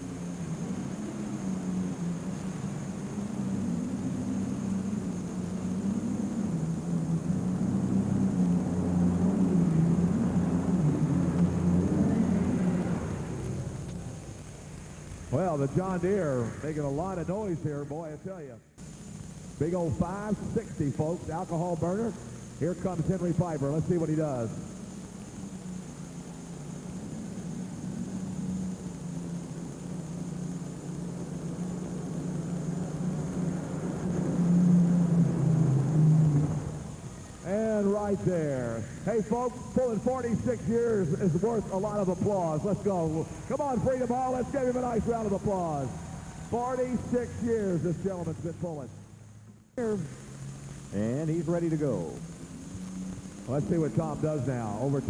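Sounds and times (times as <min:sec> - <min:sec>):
tractor engine drone: 0:00.0 - 0:55.0.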